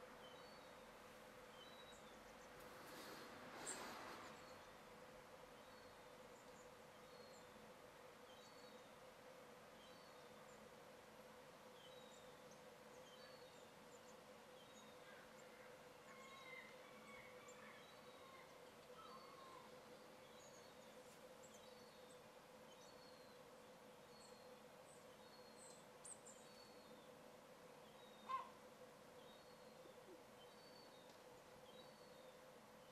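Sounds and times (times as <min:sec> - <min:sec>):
small birds chirping: 0:17.9 - 0:32.9.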